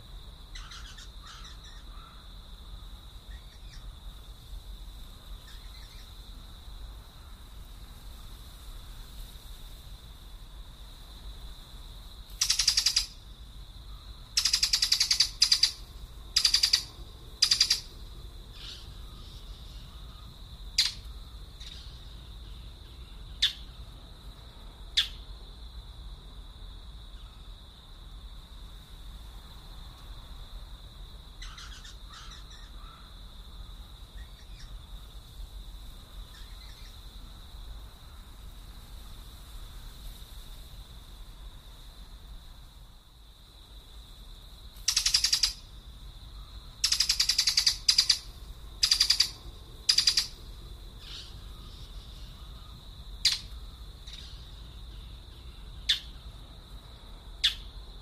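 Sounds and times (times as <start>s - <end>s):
birds harsh raspy calls: 0.5s - 2.2s, 12.4s - 13.2s, 14.4s - 15.8s, 16.4s - 17.9s, 31.4s - 33.1s, 44.9s - 45.6s, 46.8s - 50.4s, 51.0s - 56.2s.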